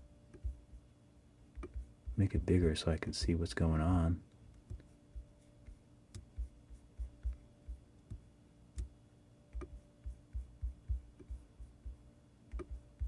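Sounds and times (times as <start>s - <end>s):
faint steady hum: 0.0s - 13.0s
mouse and keyboard clicking: 1.6s - 1.8s, 12.5s - 13.0s.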